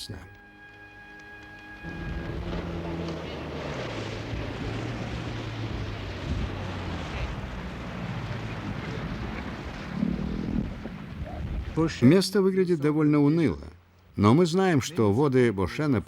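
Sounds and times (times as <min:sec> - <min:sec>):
low drone: 0:00.0 - 0:12.4
sea rushing: 0:01.4 - 0:13.7.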